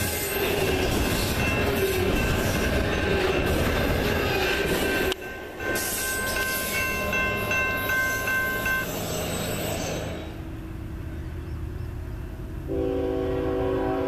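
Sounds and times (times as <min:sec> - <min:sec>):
crossing bell ringing: 0:00.0 - 0:10.8
train rumbling: 0:00.0 - 0:14.0
train air horn: 0:12.7 - 0:14.0.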